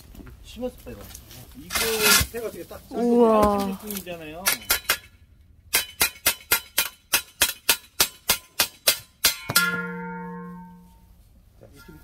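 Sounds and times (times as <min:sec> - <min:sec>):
strike with ringing tone: 0:09.3 - 0:11.1.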